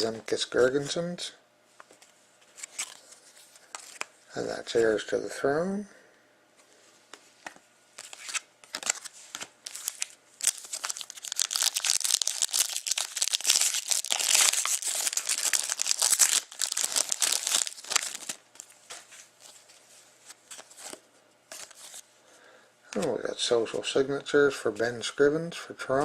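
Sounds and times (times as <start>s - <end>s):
wrapper tearing and crinkling: 8.0s - 18.8s.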